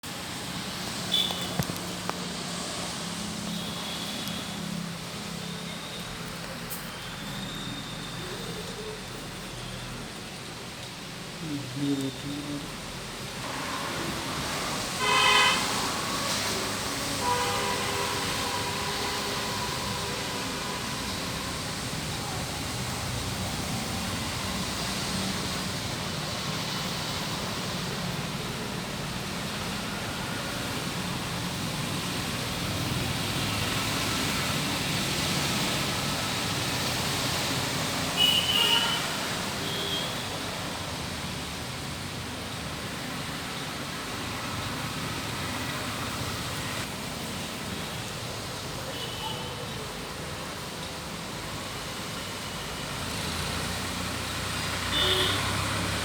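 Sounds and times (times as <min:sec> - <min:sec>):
heavy rain: 0:00.0 - 0:56.0
tyre spray on wet road: 0:00.0 - 0:56.0
vehicle horn blast: 0:15.0 - 0:15.8, 0:17.2 - 0:20.8, 0:38.2 - 0:40.2, 0:54.9 - 0:55.6.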